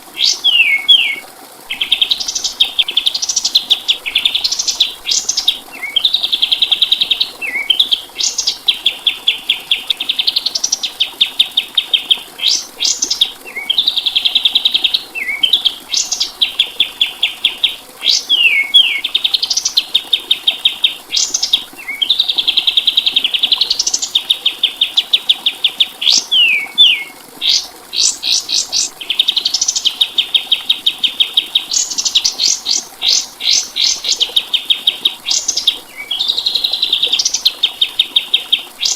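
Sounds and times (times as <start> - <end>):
songbird singing buzzy trills: 0.2 - 38.9.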